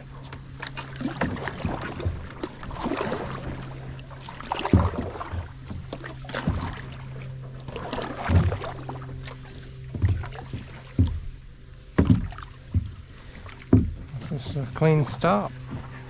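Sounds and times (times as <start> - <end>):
paddle splashing in water: 0.0 - 16.0
low knocks: 9.8 - 16.0.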